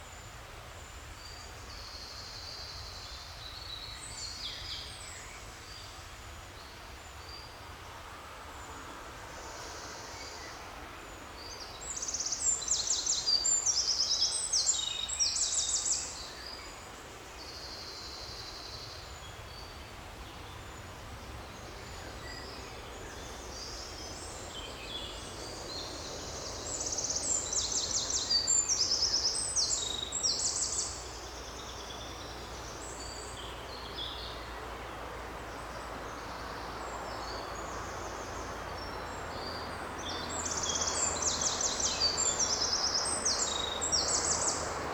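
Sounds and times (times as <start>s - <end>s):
forest background hiss: 0.0s - 44.9s
songbirds trilling: 35.8s - 44.9s.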